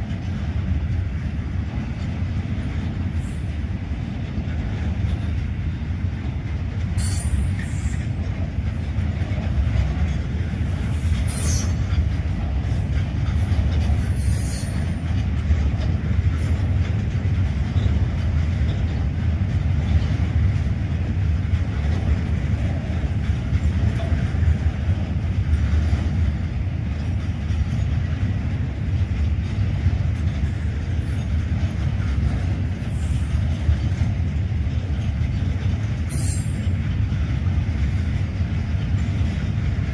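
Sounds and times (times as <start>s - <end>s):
train wheels rumbling on track: 0.0s - 39.9s
high-pitched wheel squeals: 7.0s - 8.0s, 11.3s - 11.8s, 36.1s - 36.7s.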